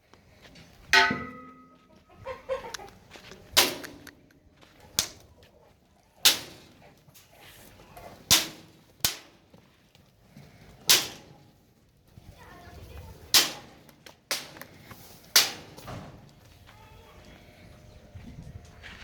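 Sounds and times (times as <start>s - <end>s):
sharp knocks: 1.0s - 1.7s.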